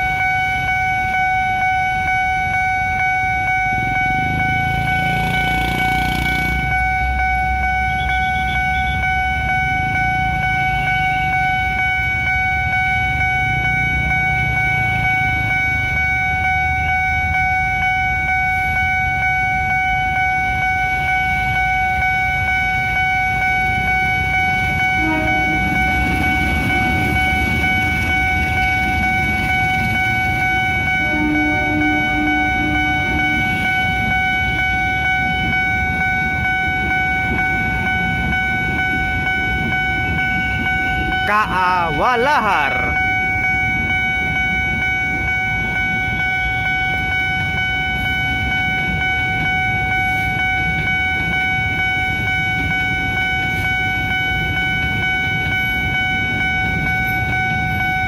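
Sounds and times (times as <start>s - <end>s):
level crossing warning siren: 0.0s - 58.0s
trains rumbling past: 0.0s - 58.0s
train horn: 23.6s - 34.8s.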